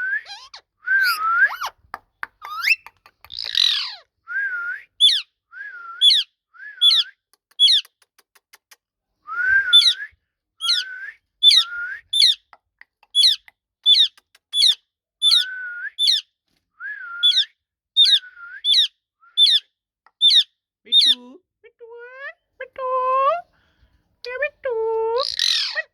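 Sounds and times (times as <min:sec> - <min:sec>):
parakeet whistling call: 0:00.2 - 0:01.8, 0:03.5 - 0:04.0, 0:05.0 - 0:05.2, 0:06.0 - 0:07.1, 0:09.7 - 0:10.0, 0:10.6 - 0:12.4, 0:13.2 - 0:16.2, 0:17.2 - 0:19.6.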